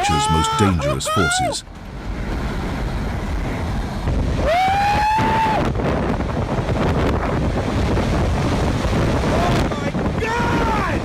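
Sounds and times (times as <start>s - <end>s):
person shouting excitedly: 0.0s - 1.7s, 10.2s - 11.0s
strong wind on microphone: 2.0s - 11.0s.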